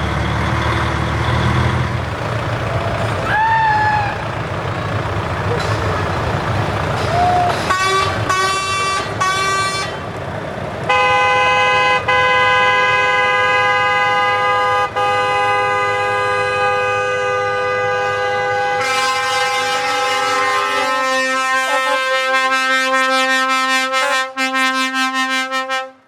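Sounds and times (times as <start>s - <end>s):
truck engine running: 0.0s - 24.8s
truck air horn blasts: 6.9s - 10.1s, 10.9s - 26.0s.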